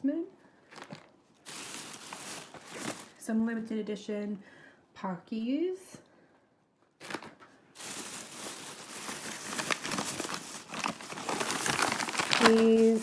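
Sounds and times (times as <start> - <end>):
snack packaging crinkling: 0.7 - 3.2, 7.0 - 13.0.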